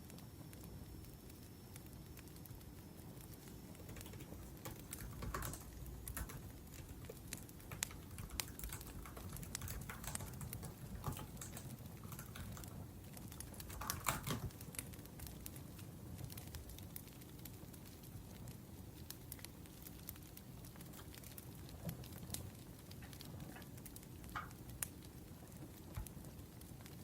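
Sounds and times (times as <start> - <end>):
wood fire crackling: 0.0 - 27.0
laptop keyboard typing: 3.4 - 15.5.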